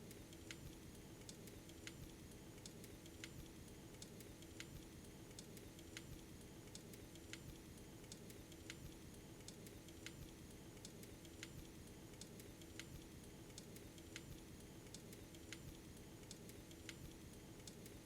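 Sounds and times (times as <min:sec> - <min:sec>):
faint sharp clicks: 0:02.6 - 0:03.4, 0:04.0 - 0:11.6, 0:12.2 - 0:15.7, 0:16.3 - 0:18.0.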